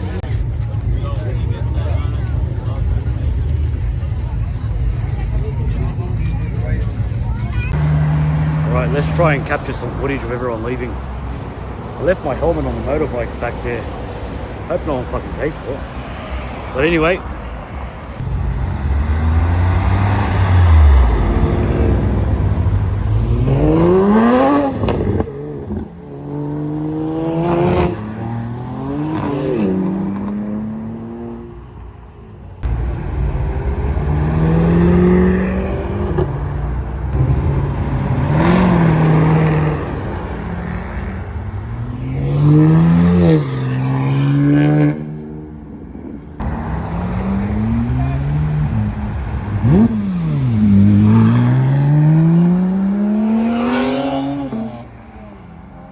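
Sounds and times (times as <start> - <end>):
cars accelerating through gears: 7.7 - 14.0, 18.2 - 31.6, 32.6 - 45.6, 46.4 - 55.3.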